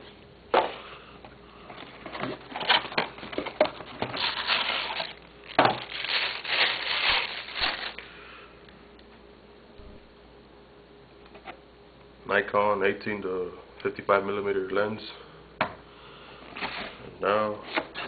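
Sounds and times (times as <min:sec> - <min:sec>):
packaging rustling and crinkling: 0:01.7 - 0:08.0.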